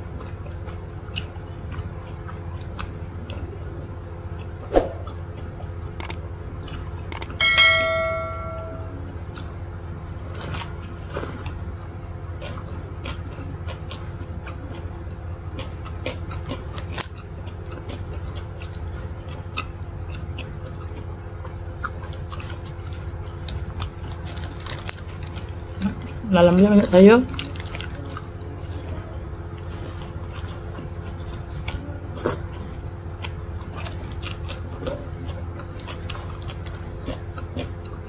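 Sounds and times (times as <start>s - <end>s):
chewing mouth sounds: 0.0s - 7.4s, 9.2s - 26.7s, 27.3s - 38.0s
steady low hum: 0.0s - 38.0s
bell-like chime: 7.4s - 9.0s.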